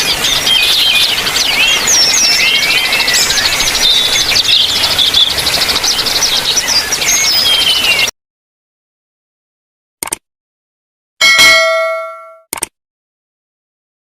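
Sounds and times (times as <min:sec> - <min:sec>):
birds whistling and chirping: 0:00.0 - 0:08.1.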